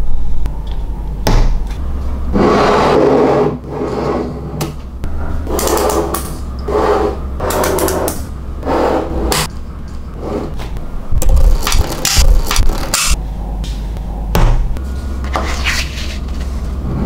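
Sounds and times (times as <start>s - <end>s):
low hum: 0.0s - 17.0s
magnetic balls clicking together: 11.2s - 13.2s.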